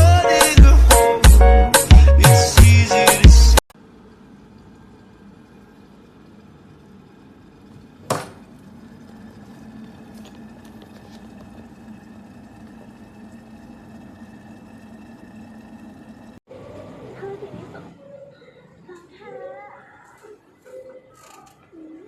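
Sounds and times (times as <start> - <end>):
electric kettle humming: 3.8 - 16.4.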